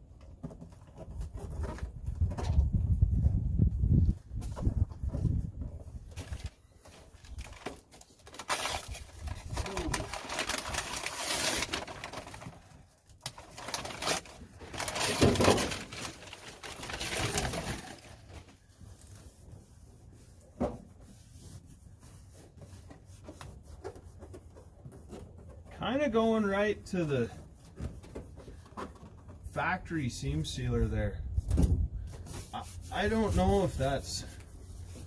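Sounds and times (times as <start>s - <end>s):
foil mat crinkling: 6.0s - 19.5s, 32.2s - 35.0s.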